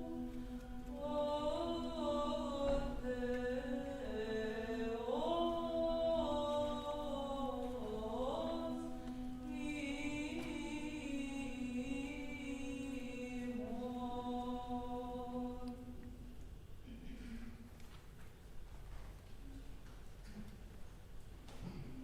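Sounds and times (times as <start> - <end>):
unaccompanied voices chanting: 0.0 - 16.2.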